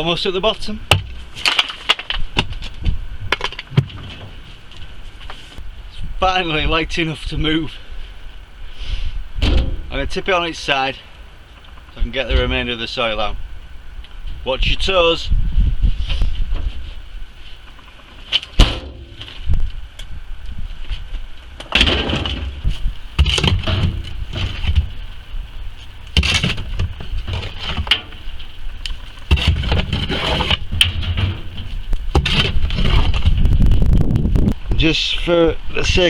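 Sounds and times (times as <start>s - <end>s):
thuds and scraping: 18.6s - 19.6s, 21.8s - 34.4s.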